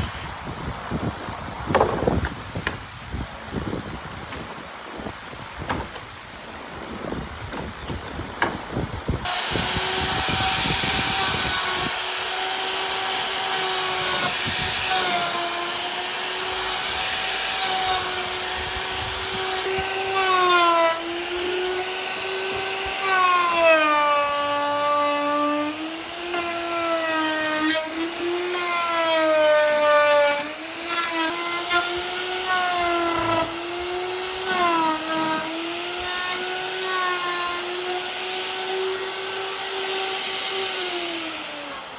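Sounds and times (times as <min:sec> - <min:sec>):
power tool motor whining: 0:09.2 - 0:41.9.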